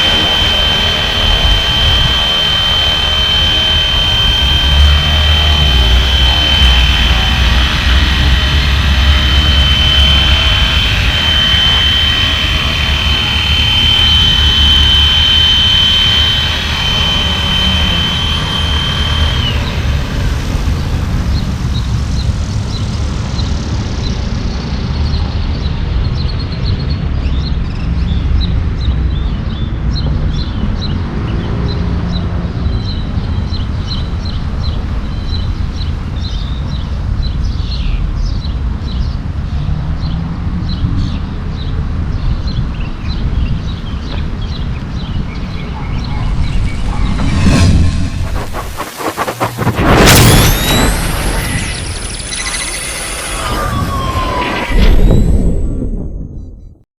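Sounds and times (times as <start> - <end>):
rc helicopter rotor whine: 0.0 - 25.0, 43.2 - 56.6
wind rumble on microphone: 0.0 - 51.2
faint high chirps: 45.3 - 56.7.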